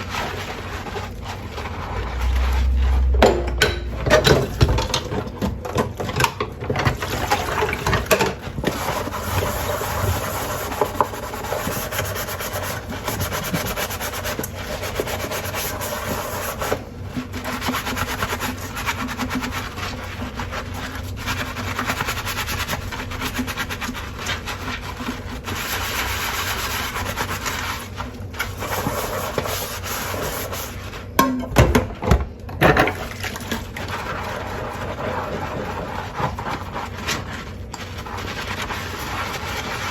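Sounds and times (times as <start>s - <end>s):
sponge scrubbing crockery: 0.0s - 32.0s, 32.6s - 39.9s
dishes clinking: 3.2s - 5.0s.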